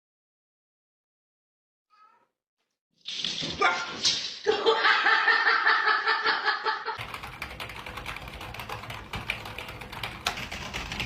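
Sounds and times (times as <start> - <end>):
person laughing: 4.4 - 7.0.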